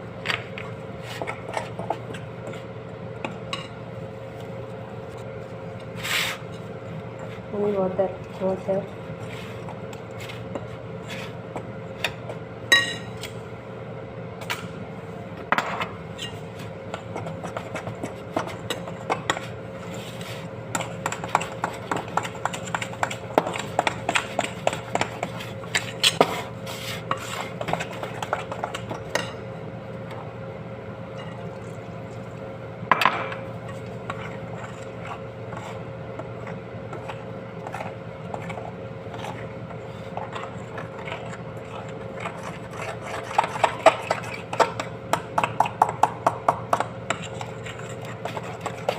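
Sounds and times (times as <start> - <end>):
steady hum: 0.0 - 48.9
spoon clinking against bowl: 12.7 - 13.1.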